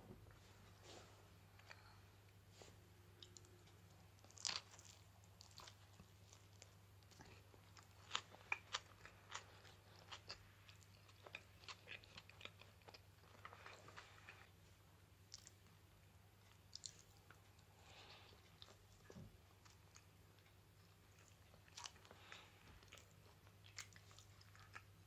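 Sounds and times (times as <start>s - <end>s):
bread crust crunching: 3.2s - 14.4s
chewing crunches: 3.2s - 14.5s, 21.1s - 25.0s.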